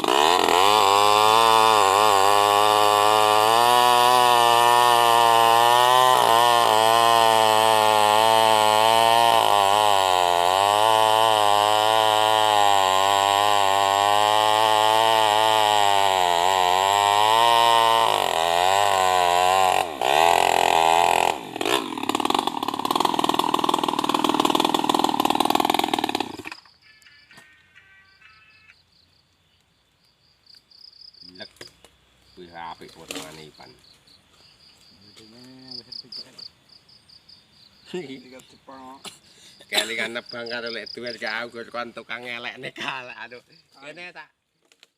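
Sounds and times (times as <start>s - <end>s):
chainsaw cutting wood: 0.0s - 26.8s, 32.8s - 33.7s, 39.3s - 40.5s, 44.6s - 44.9s.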